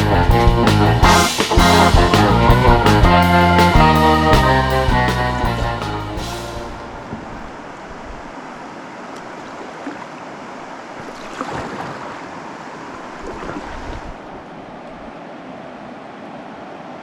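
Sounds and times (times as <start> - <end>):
river water rushing: 6.6 - 17.0.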